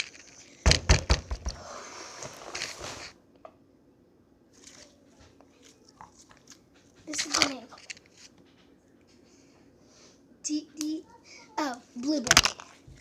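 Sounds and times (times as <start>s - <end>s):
rustling: 4.5s - 10.2s.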